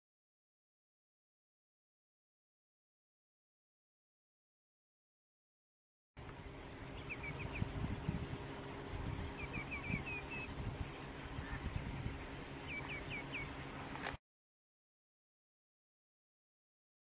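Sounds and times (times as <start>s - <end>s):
birds giving short high calls: 6.2s - 14.0s.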